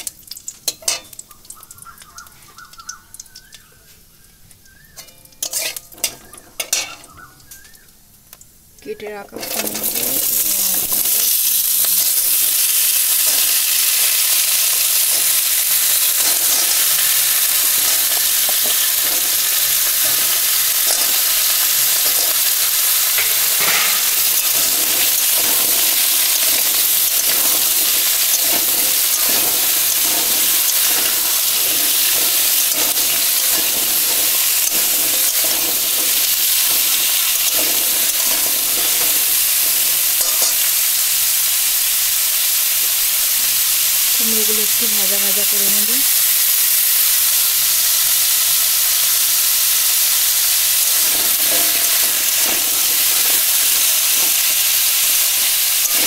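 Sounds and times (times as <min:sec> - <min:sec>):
vegetables sizzling in hot oil: 0:00.0 - 0:56.0
metal spatula scraping pan: 0:04.9 - 0:07.2, 0:13.2 - 0:40.7, 0:50.8 - 0:56.0.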